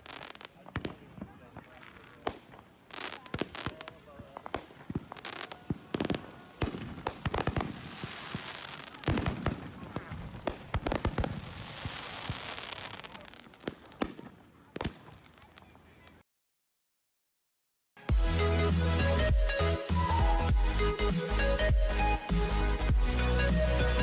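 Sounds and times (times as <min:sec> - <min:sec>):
fireworks bangs and crackling: 0:00.0 - 0:16.2.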